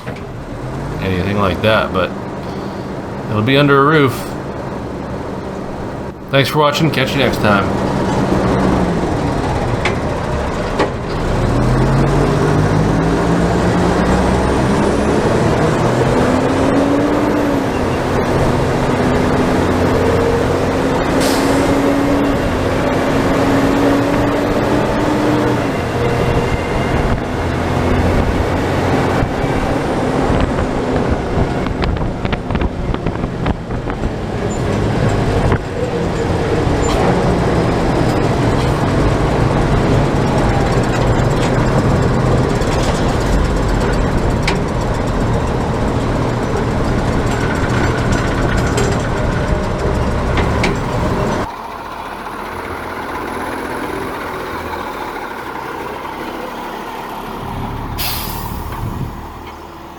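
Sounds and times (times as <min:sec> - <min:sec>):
heavy truck engine running: 0:00.0 - 0:59.9.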